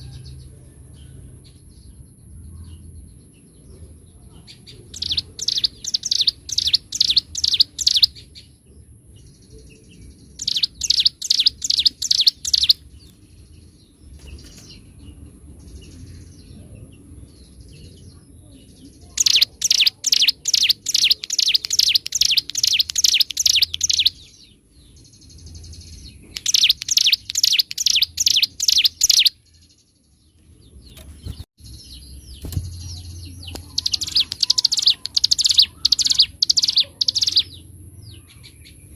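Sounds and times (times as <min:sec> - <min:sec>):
quiet bird twittering: 0:00.0 - 0:38.9
bird singing sharp high notes: 0:05.0 - 0:08.2, 0:10.4 - 0:12.8, 0:19.2 - 0:24.4, 0:26.3 - 0:29.4, 0:32.4 - 0:37.6.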